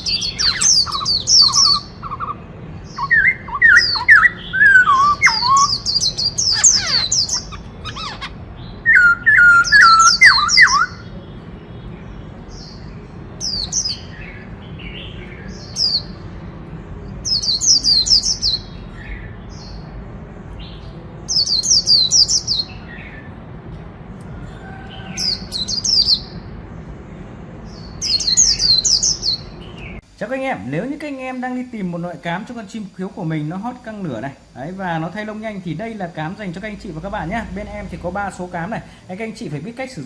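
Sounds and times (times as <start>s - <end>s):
bird singing whistled phrases: 0.0s - 2.4s, 3.0s - 11.1s.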